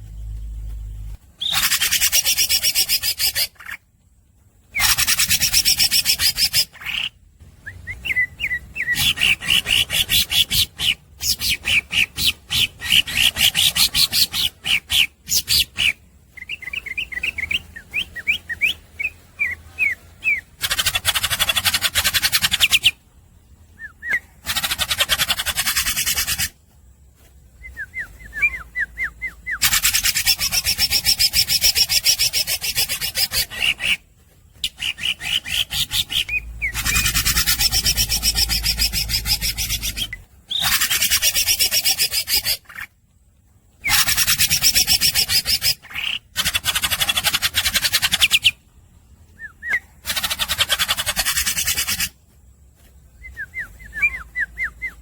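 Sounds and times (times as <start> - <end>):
bird singing rattling trills: 27.6 - 42.9.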